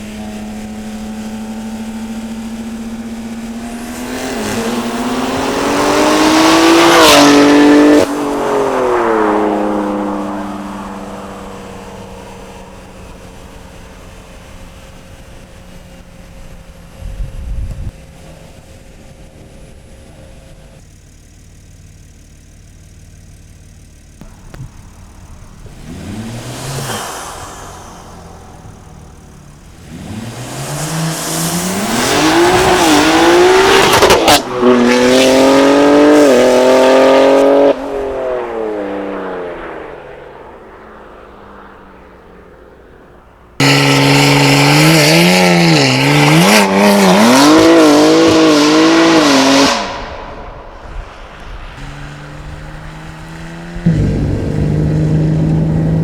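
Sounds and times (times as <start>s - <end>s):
car engine revving: 0.0s - 56.0s
exhaust crack at gear change: 0.0s - 56.0s
tire squeal: 24.2s - 56.0s.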